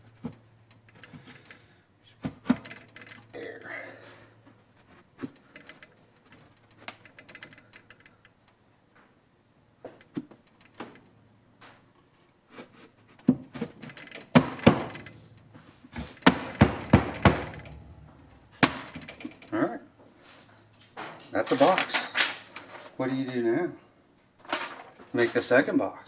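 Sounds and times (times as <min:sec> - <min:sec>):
wooden boards clicking and knocking: 0:13.2 - 0:15.2, 0:15.9 - 0:19.5.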